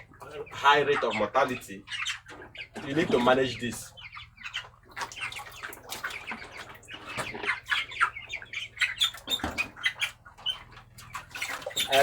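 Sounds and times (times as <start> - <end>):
chickens calling: 0.0 - 12.0.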